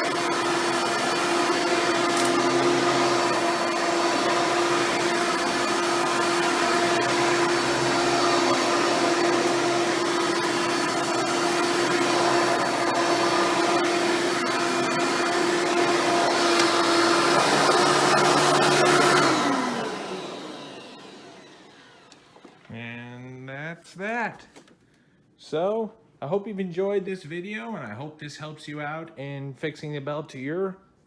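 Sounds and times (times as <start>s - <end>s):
upright vacuum motor running: 0.0s - 22.7s.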